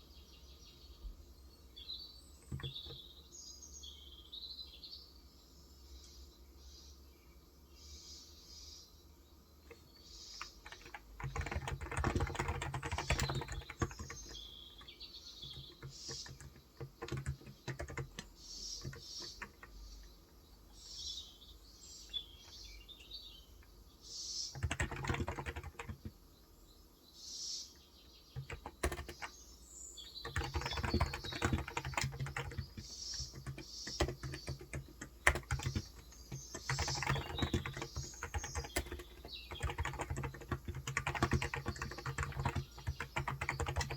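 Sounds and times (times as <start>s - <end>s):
birds chirping: 0.1s - 5.2s, 5.9s - 43.9s
typing on keyboard: 2.4s - 3.0s, 9.7s - 19.9s, 24.5s - 26.2s, 28.4s - 29.4s, 30.0s - 43.9s.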